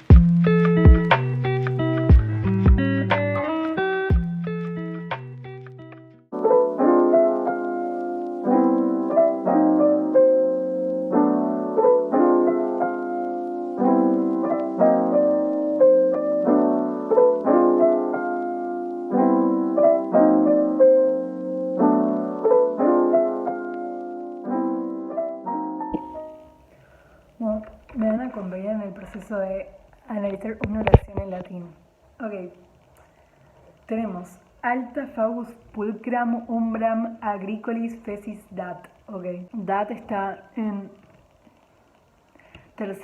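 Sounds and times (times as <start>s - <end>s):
gentle piano piece: 0.0s - 26.6s.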